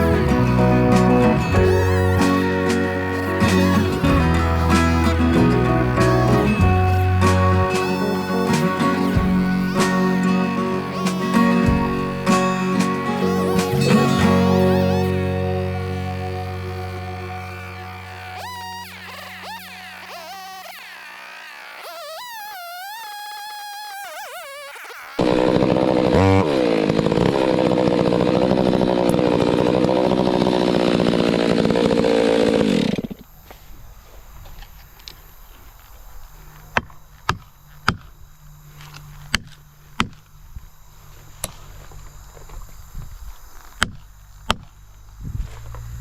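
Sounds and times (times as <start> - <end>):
chainsaw running: 0.0 - 21.9, 25.2 - 33.3.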